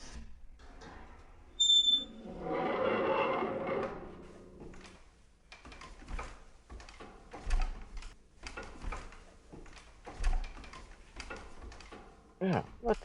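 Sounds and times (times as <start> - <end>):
wooden creaks and clicks: 2.4 - 12.2.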